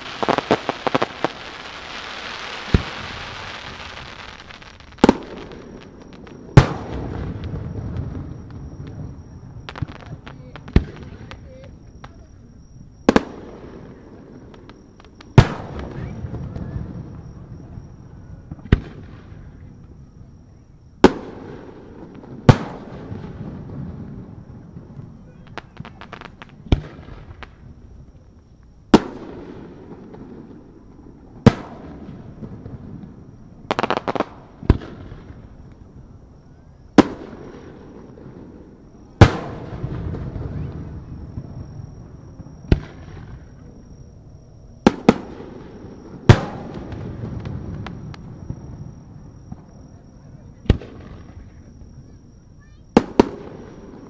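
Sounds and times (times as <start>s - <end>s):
firework shells bursting with echo: 0.0s - 12.3s, 37.0s - 44.0s, 44.8s - 54.0s
firework crackling: 0.0s - 12.4s, 28.9s - 36.0s, 44.7s - 49.9s, 50.5s - 54.0s.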